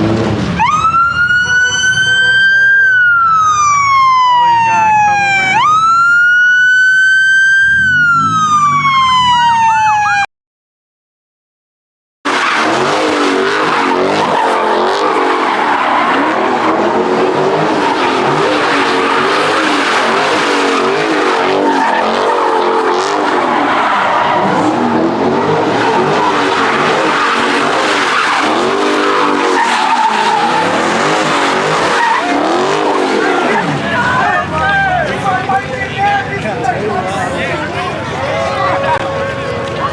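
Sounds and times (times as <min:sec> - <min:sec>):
car engine revving: 0:12.3 - 0:39.9
tires squealing: 0:12.3 - 0:39.9.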